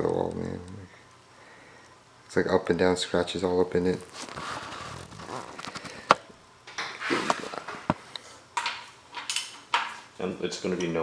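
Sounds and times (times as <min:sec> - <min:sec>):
rustling and shuffling: 0:02.7 - 0:10.8.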